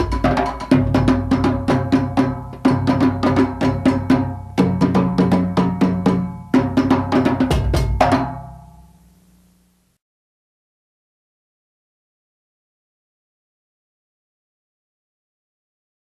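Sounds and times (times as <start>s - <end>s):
fast hand drumming: 0.0s - 8.6s.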